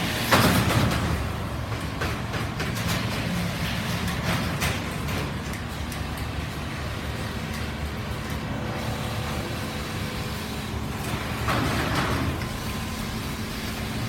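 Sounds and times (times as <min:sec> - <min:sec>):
quilting machines humming: 0:00.0 - 0:14.0.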